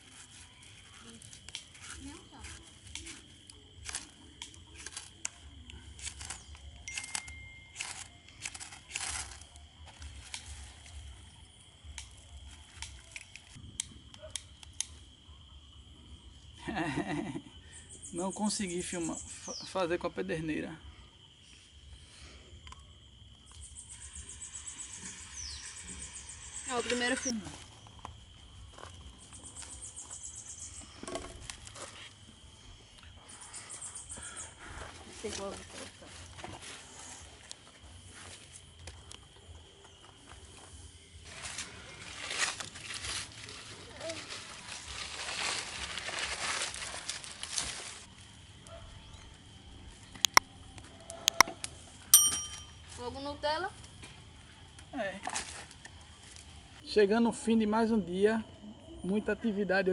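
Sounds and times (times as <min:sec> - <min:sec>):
kindling fire crackling: 0:00.0 - 0:15.9, 0:35.2 - 0:48.7
insects chirping in pulsing trill: 0:00.0 - 0:59.9.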